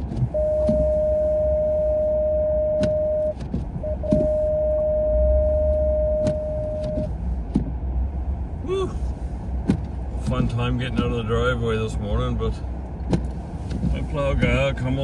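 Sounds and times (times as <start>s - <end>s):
engine and road rumble: 0.0s - 15.0s
electronic warning tone: 0.3s - 7.1s.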